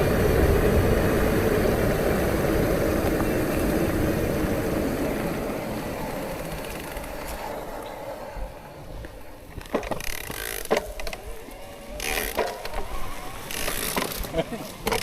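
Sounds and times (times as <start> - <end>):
bicycle rattling over rough ground: 0.0 - 15.0
crunching noise: 9.0 - 15.0
bike knocks and clicks: 9.5 - 11.2, 12.0 - 15.0.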